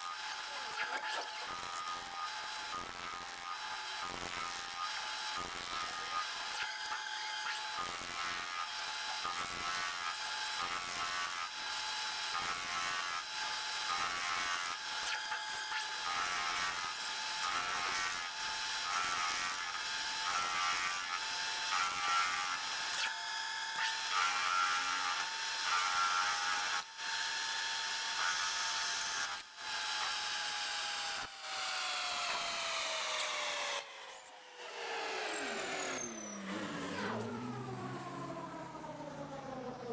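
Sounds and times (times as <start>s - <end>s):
harsh cutting noise: 0.0s - 11.6s, 28.1s - 39.9s
machine tool whine: 0.0s - 39.9s.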